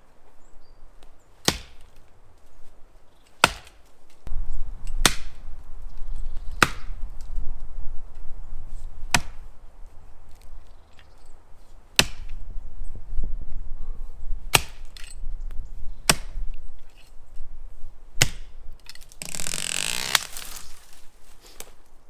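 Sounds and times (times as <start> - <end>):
axe chopping tree trunk: 1.4 - 2.0, 3.4 - 3.9, 5.0 - 5.4, 6.5 - 7.0, 9.1 - 9.5, 11.9 - 12.4, 14.5 - 15.0, 16.0 - 16.4, 18.2 - 21.8.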